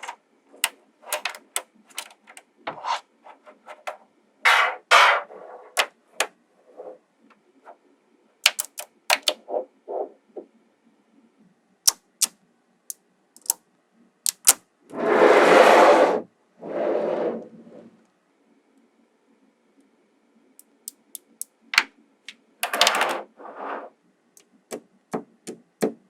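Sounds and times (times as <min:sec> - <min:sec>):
magnetic balls clicking together: 0:00.0 - 0:02.4, 0:08.4 - 0:09.4, 0:11.9 - 0:13.6, 0:14.2 - 0:14.6, 0:20.6 - 0:21.9.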